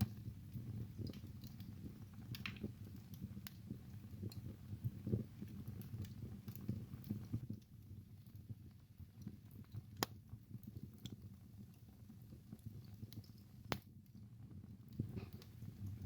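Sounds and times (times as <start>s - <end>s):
sharp pops of burning wood: 0.0s - 7.7s, 9.2s - 11.2s, 12.5s - 14.1s, 14.8s - 16.0s
fire flames rumbling: 0.0s - 16.0s
wood fire crackling: 0.0s - 16.0s.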